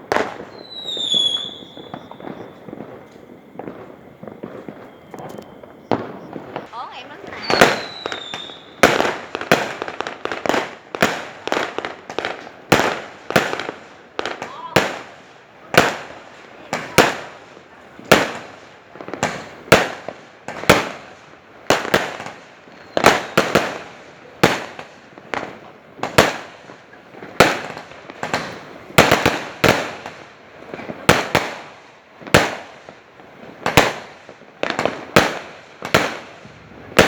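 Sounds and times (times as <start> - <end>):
fireworks banging: 0.0 - 37.0.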